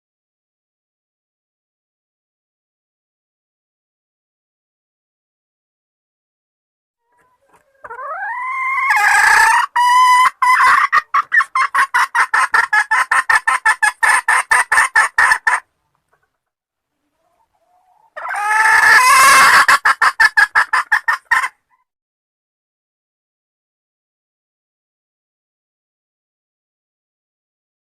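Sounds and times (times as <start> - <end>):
hen squawking and clucking: 7.0 - 16.4, 17.0 - 21.9.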